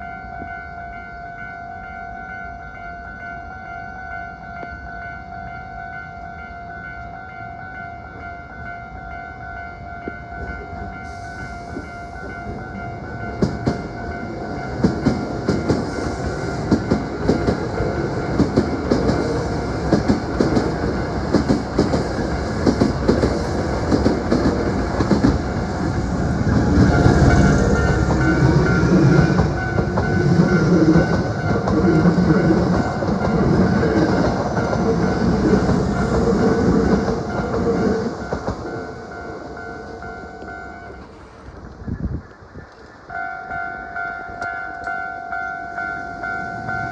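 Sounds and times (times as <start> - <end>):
electric train passing: 0.0 - 46.9
train wheels clacking over rail joints: 14.8 - 38.9.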